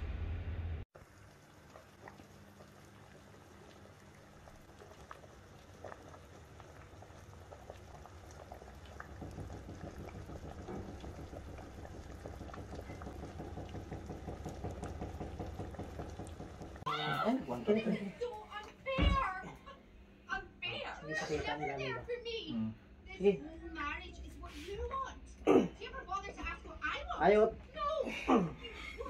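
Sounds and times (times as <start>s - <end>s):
pot of water boiling: 0.9s - 18.8s.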